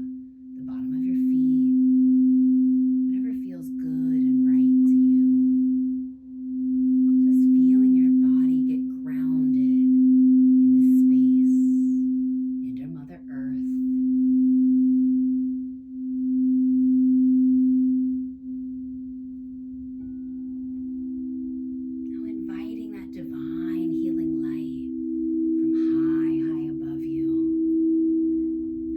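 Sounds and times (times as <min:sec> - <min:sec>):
higher singing bowl tone: 0:00.0 - 0:28.9
singing bowl low tone: 0:00.0 - 0:28.9.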